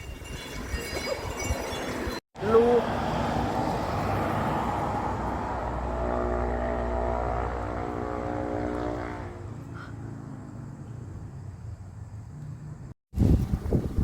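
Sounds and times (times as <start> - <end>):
engine droning: 2.4 - 11.4.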